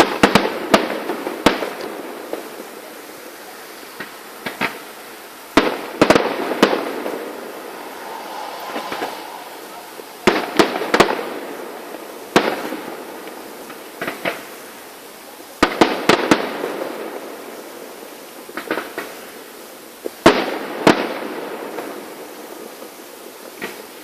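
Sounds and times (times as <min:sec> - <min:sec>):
fireworks bangs: 0:00.0 - 0:14.8, 0:15.6 - 0:19.4.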